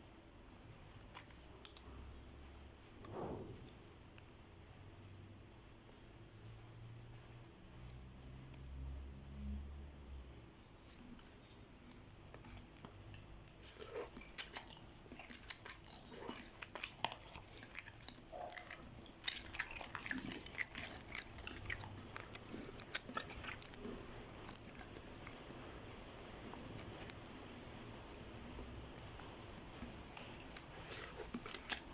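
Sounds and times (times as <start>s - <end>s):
person chewing food: 11.9s - 31.9s.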